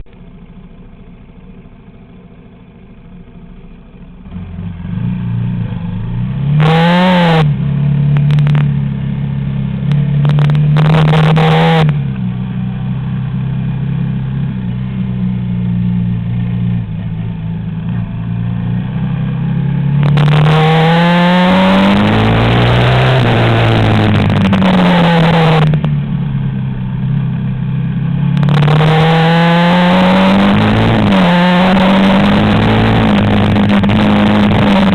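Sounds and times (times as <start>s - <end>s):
quad bike engine accelerating: 0.0s - 34.9s.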